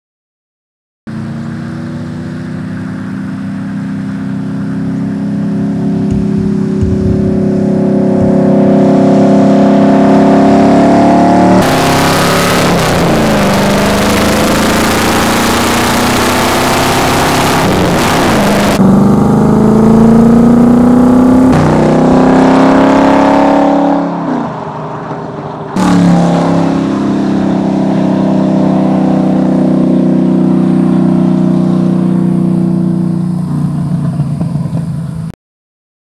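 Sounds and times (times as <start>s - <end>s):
car engine revving: 1.1s - 35.0s
rushing wind noise: 5.8s - 10.7s.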